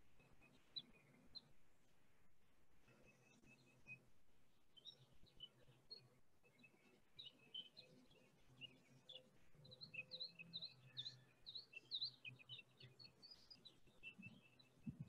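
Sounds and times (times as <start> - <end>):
faint songbirds chirping: 0.0 - 15.0.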